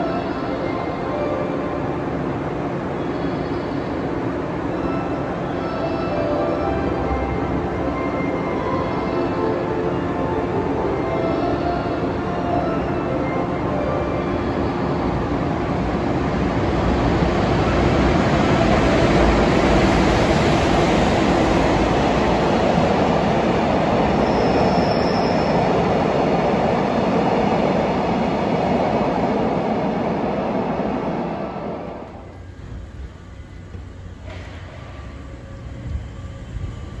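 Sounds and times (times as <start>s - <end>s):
train wheels rumbling on rails: 15.0s - 37.0s
faint high squeal: 24.1s - 25.8s.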